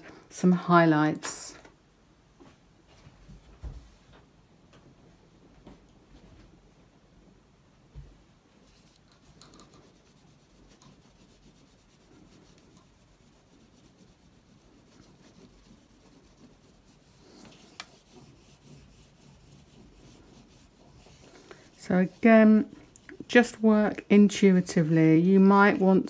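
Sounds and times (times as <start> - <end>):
oil pastel scratching on paper: 8.6 - 26.0.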